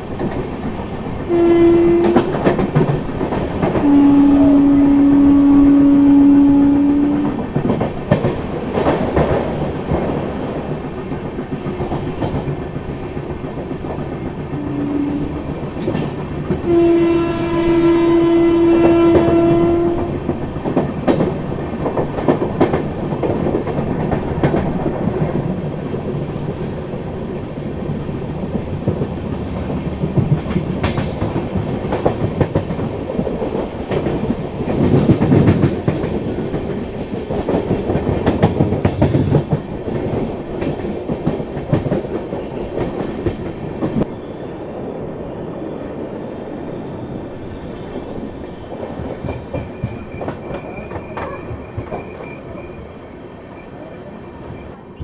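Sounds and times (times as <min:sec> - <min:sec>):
train wheels rumbling on rail: 0:00.0 - 0:55.0
clacks over rail joints: 0:00.1 - 0:04.1, 0:07.2 - 0:14.9, 0:15.6 - 0:16.7, 0:18.8 - 0:44.1, 0:48.7 - 0:52.6
train horn: 0:01.3 - 0:02.6, 0:03.8 - 0:07.4, 0:14.5 - 0:15.6, 0:16.6 - 0:20.3.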